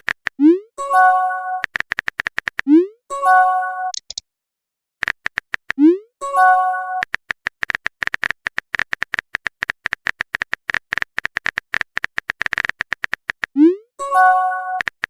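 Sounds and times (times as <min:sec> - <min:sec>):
phone keyboard typing clicks: 0:01.6 - 0:02.7, 0:03.9 - 0:04.2, 0:05.0 - 0:05.8, 0:07.0 - 0:13.6.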